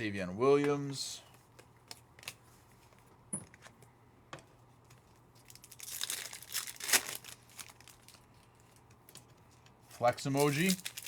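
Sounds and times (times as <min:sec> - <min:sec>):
foil wrapper crinkling and tearing: 0:05.4 - 0:09.2, 0:09.9 - 0:11.0.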